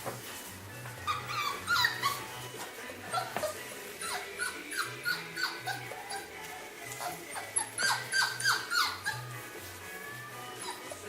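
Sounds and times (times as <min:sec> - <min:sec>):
background music: 0:00.0 - 0:11.0
puppies whimpering and yipping: 0:00.9 - 0:11.0.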